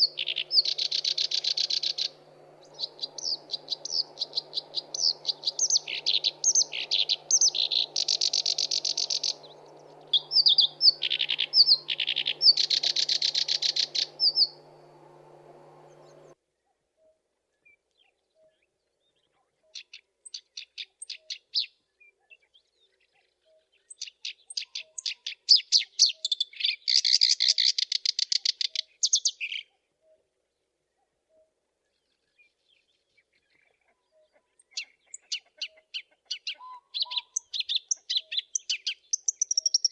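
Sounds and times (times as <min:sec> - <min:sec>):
faint low hum: 0:00.0 - 0:16.4
warbler singing harsh chattering: 0:00.0 - 0:16.4.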